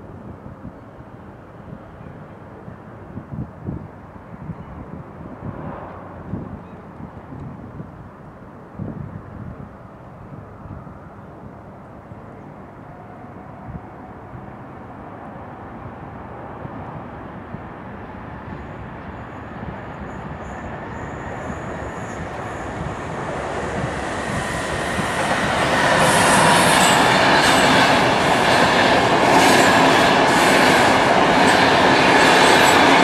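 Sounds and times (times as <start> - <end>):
train rumble: 12.6 - 33.0
faint high squealing: 18.6 - 23.3.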